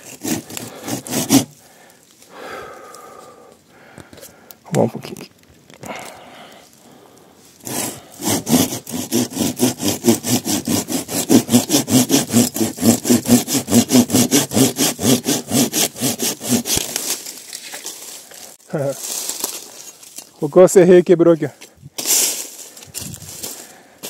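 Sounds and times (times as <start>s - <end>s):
hand saw cutting branch: 0.0s - 1.6s, 7.6s - 18.4s, 22.0s - 23.7s.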